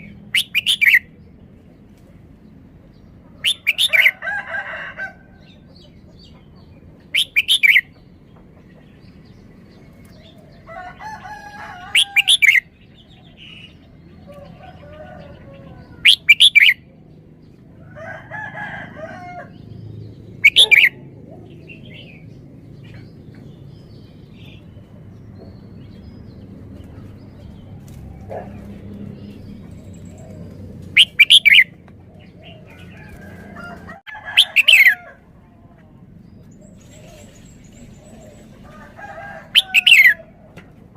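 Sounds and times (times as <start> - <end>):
soft bird calls: 5.4 - 16.8, 20.4 - 35.1
bird whistled phrases: 20.5 - 20.9, 31.0 - 31.7.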